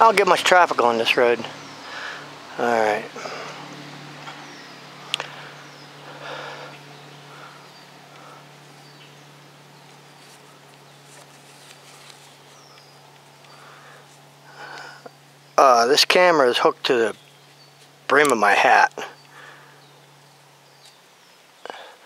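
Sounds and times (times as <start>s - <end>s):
steady low hum: 0.0s - 22.0s
bird chirps: 3.2s - 15.8s, 17.0s - 21.9s
rope rustle: 9.6s - 15.0s.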